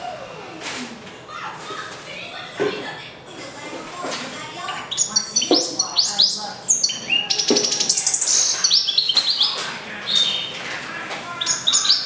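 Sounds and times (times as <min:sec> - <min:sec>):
songbird trilling song: 0:04.7 - 0:09.5.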